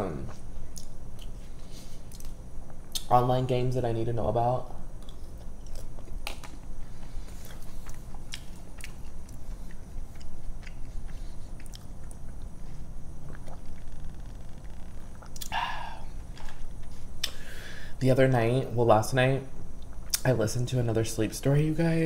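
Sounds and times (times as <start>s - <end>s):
chewing tortilla chips: 5.0s - 15.6s
wet mouth clicks: 15.2s - 15.6s, 17.2s - 17.4s.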